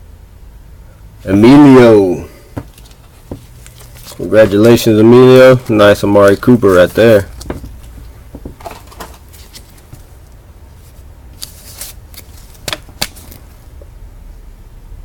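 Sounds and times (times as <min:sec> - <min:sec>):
low steady hum: 0:00.0 - 0:15.0
card and plastic rustling: 0:02.6 - 0:13.6
sharp clicks of cards: 0:11.4 - 0:13.5.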